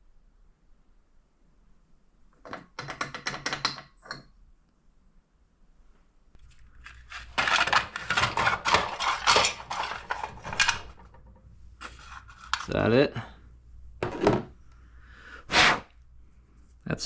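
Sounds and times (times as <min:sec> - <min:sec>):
metal parts clattering on workbench: 0:06.7 - 0:12.8.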